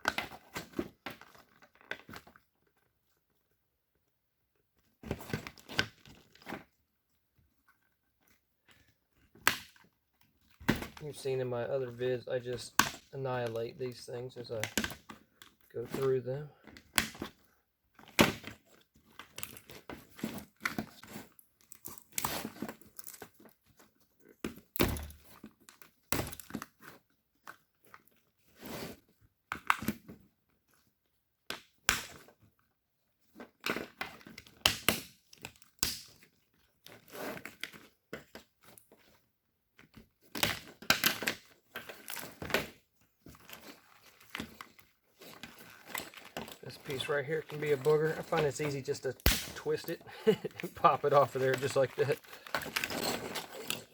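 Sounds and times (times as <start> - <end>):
plastic crackling and tearing: 40.2 - 53.9.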